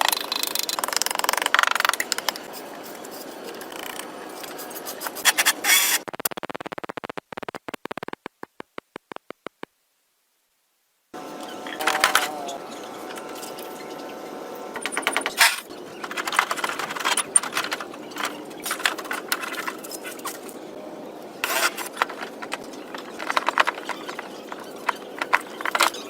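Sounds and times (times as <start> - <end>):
faint steady hum: 9.8 - 26.0
metallic clicking and clatter: 14.8 - 20.6, 21.4 - 26.0.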